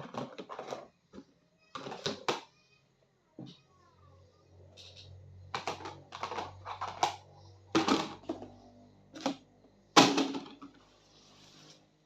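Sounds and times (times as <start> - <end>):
objects clicking and knocking: 0.0 - 2.5, 4.8 - 8.6.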